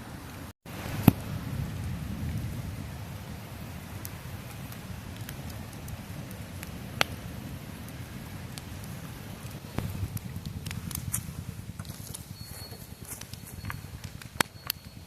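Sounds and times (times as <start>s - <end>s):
campfire burning: 0.1s - 15.0s
wood popping: 7.9s - 15.0s.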